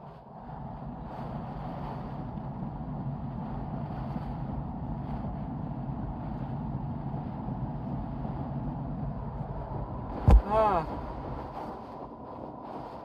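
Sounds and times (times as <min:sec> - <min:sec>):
vehicle cabin rumble: 0:00.4 - 0:13.0.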